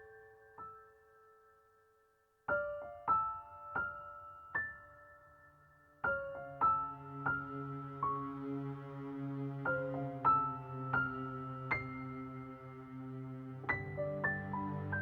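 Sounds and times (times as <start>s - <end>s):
soft solo piano: 0.0s - 1.7s, 2.5s - 8.4s, 9.6s - 12.7s, 13.6s - 15.0s.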